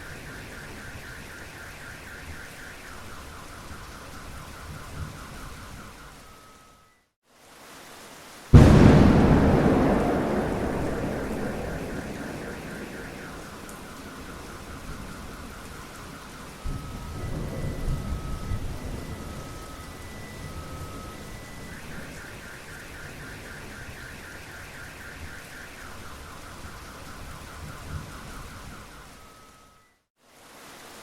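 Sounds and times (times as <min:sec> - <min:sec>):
heavy rain: 0:07.3 - 0:28.8, 0:30.2 - 0:31.0
thunder rumble: 0:08.5 - 0:21.2.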